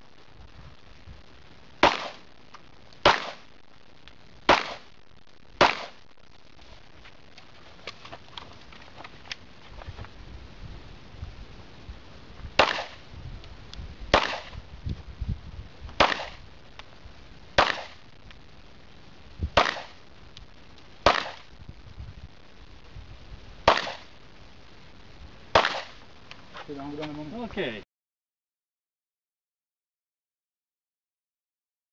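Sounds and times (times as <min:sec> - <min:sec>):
handgun shots: 0:03.1 - 0:03.4, 0:04.5 - 0:04.8, 0:05.6 - 0:06.0, 0:12.6 - 0:13.0, 0:14.2 - 0:14.6, 0:16.0 - 0:16.4, 0:17.6 - 0:18.0, 0:19.6 - 0:20.0, 0:21.1 - 0:21.4, 0:23.7 - 0:24.1, 0:25.6 - 0:26.0.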